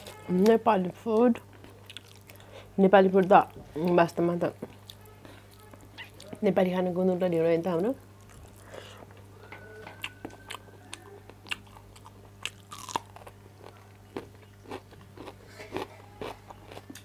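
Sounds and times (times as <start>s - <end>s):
person crunching and chewing: 10.0s - 17.0s.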